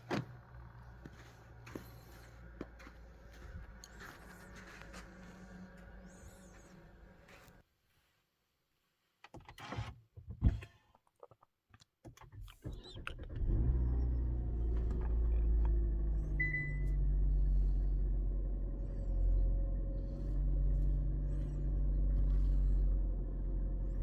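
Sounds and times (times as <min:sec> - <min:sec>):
car engine starting and running: 0:00.0 - 0:07.6, 0:12.2 - 0:24.0.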